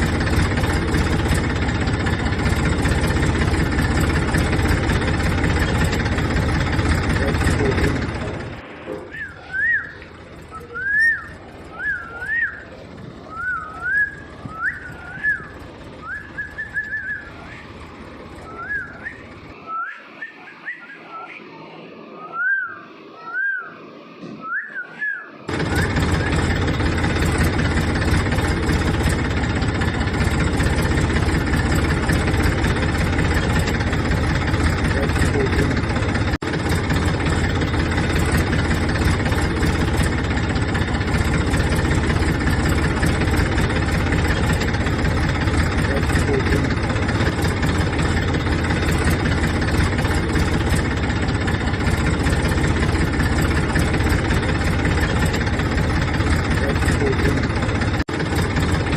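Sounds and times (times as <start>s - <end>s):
tractor engine rumbling: 0.0s - 58.9s
rising and falling whistle: 9.0s - 17.6s, 18.4s - 25.9s.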